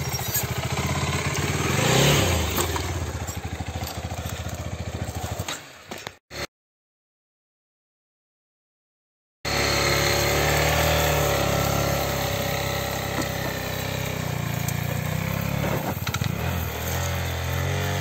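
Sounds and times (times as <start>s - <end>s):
motorcycle engines revving: 0.0s - 6.5s, 9.5s - 18.0s.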